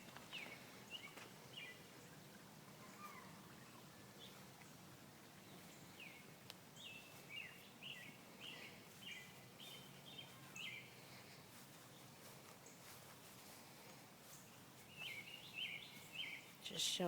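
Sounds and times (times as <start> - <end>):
small bird chirping: 14.3 - 16.8.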